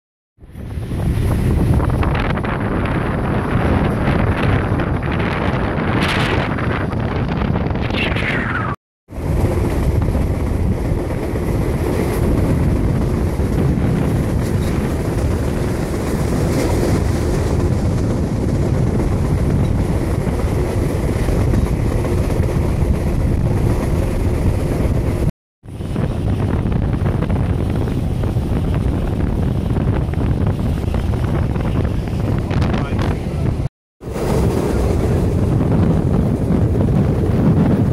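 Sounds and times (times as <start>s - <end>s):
low rumble of train car: 0.4s - 7.8s, 9.1s - 37.9s
wind buffeting microphone: 0.4s - 37.9s.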